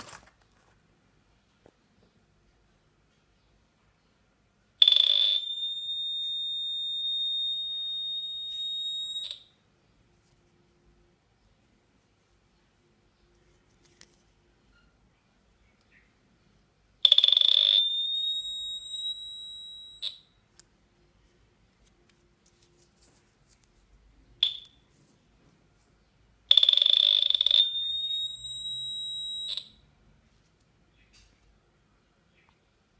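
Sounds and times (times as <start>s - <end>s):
high electronic detector tone: 4.8s - 9.5s, 17.1s - 20.3s, 26.5s - 29.8s.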